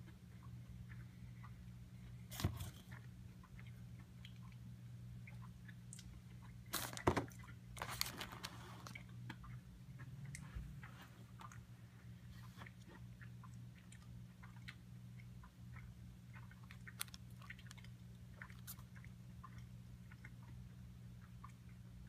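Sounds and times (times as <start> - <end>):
steady low hum: 0.0 - 22.0
crunchy chewing: 15.7 - 20.6.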